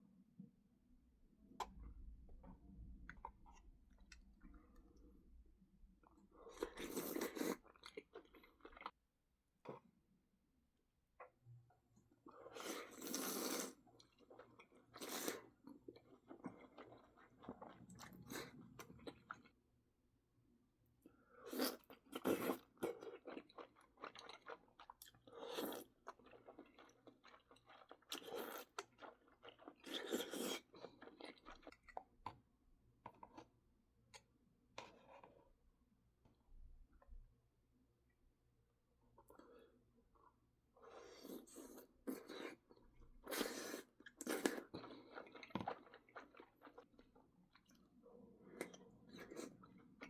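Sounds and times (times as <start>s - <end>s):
chewing and crunchy bites: 21.5s - 32.4s.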